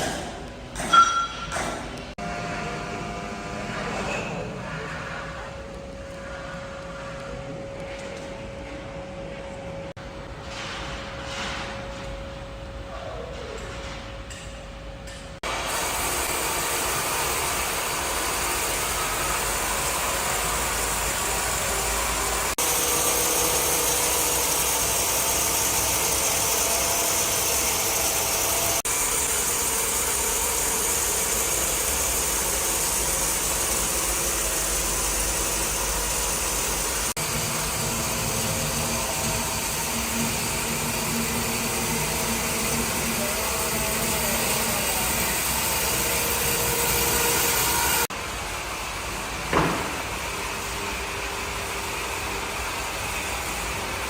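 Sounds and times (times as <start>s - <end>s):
wood-cutting saw machinery running: 15.4s - 54.0s.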